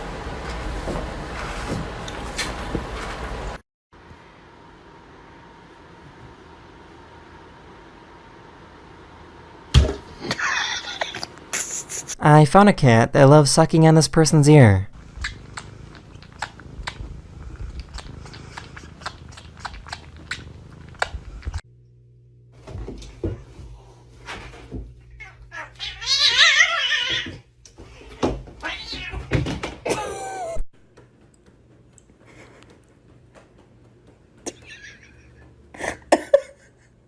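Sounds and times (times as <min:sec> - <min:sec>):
cat yowling: 0:25.2 - 0:27.4, 0:28.1 - 0:29.3.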